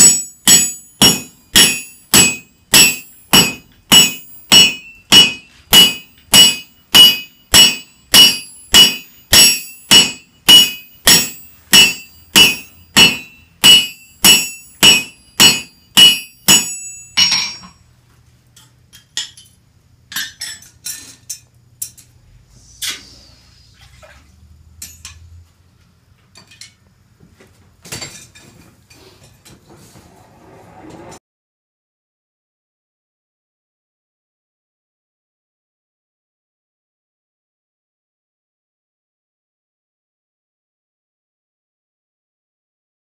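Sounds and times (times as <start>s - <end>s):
hammer ringing on metal: 0.0s - 17.8s.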